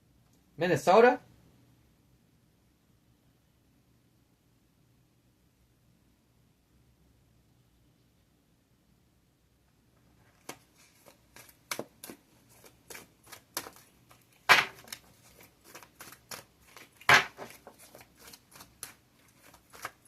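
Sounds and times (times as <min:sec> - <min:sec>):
cards being shuffled: 0:10.2 - 0:20.0.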